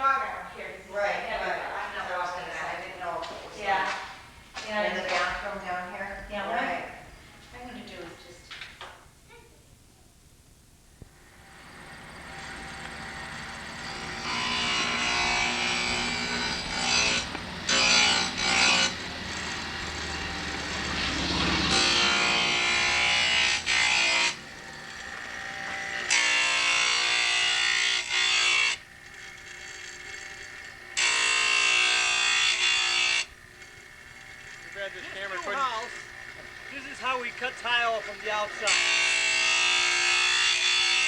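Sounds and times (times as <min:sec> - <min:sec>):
power saw cutting tile: 0:11.2 - 0:41.0.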